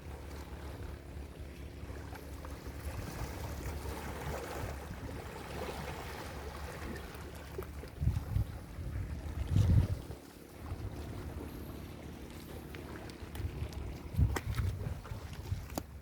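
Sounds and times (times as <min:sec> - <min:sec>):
wind buffeting microphone: 0:07.8 - 0:16.0.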